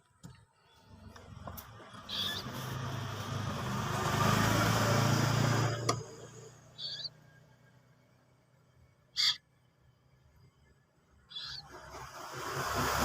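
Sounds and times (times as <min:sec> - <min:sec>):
passing motor vehicle: 0:00.6 - 0:13.0
short high peeps: 0:06.8 - 0:07.1, 0:09.2 - 0:09.4.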